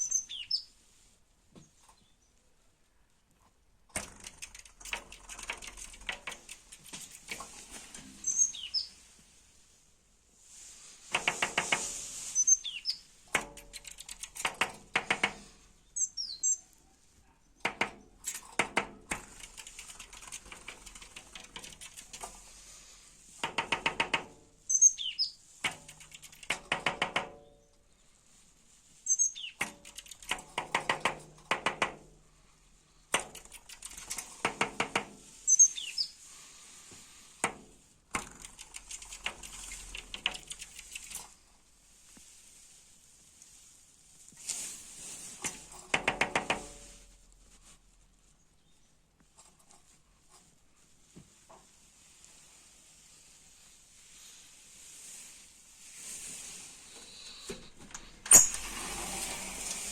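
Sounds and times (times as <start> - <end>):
small bird chirping: 0.0 - 0.8, 8.2 - 9.0, 12.2 - 14.4, 15.8 - 18.5, 24.7 - 26.5, 29.0 - 30.4, 35.4 - 36.3, 38.4 - 41.4.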